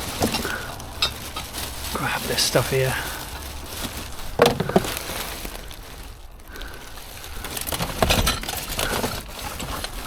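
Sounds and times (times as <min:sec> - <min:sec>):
rubbish clattering: 0:00.0 - 0:10.0
rubbish handling noise: 0:00.0 - 0:10.0.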